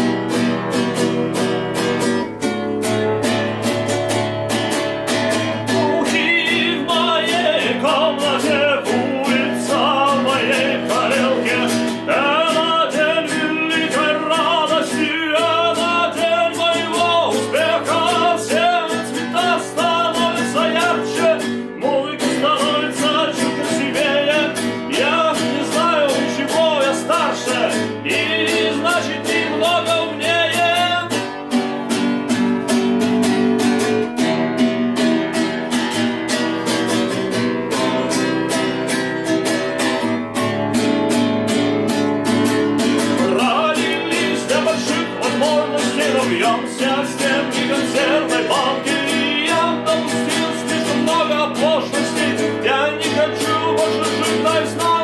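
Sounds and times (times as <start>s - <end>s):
acoustic guitar strumming: 0.0s - 55.0s
person singing: 5.6s - 31.3s, 37.4s - 38.7s, 43.0s - 55.0s.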